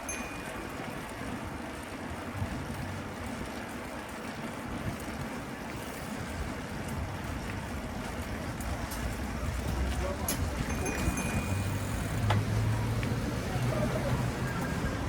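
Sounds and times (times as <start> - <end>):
road rumble: 0.0 - 15.0
wind on microphone: 1.1 - 3.6.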